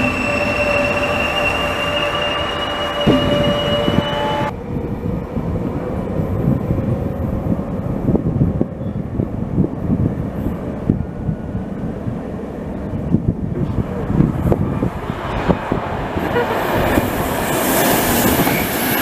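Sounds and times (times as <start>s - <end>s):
train wheels squealing on rails: 0.0s - 4.5s, 16.2s - 19.0s
low rail rumble: 0.0s - 19.0s.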